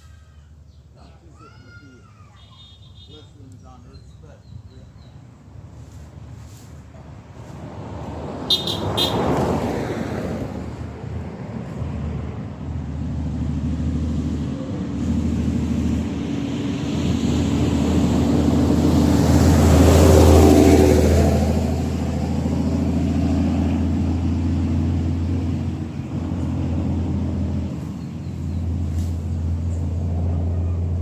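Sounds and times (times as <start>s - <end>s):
passing vehicle rushing: 4.7s - 31.0s
vehicle engine running: 21.3s - 31.0s.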